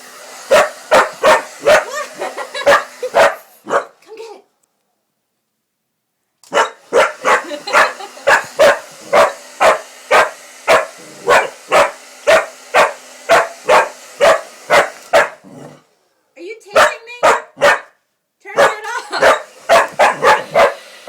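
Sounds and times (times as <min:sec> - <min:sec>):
hair dryer whirring: 0:00.0 - 0:03.7, 0:06.8 - 0:15.4, 0:18.7 - 0:21.0
dog barking: 0:00.5 - 0:02.0, 0:02.6 - 0:04.0, 0:06.5 - 0:15.4, 0:16.7 - 0:20.8.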